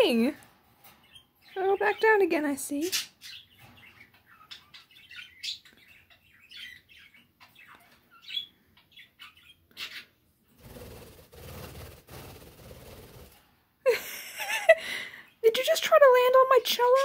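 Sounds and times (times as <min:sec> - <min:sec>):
pet birds chirping: 0:00.0 - 0:13.2, 0:13.9 - 0:17.0.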